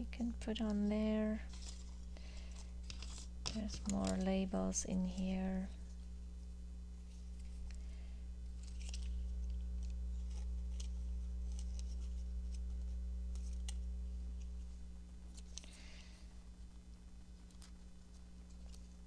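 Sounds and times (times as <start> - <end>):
low steady rumble: 0.0 - 19.0
paper rustling and clicking: 0.6 - 6.0, 8.5 - 14.6, 15.3 - 19.0.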